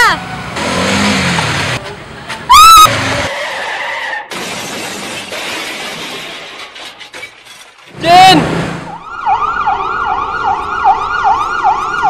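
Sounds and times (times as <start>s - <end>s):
glass shattering: 4.3s - 7.9s
debris scattering: 4.3s - 8.0s.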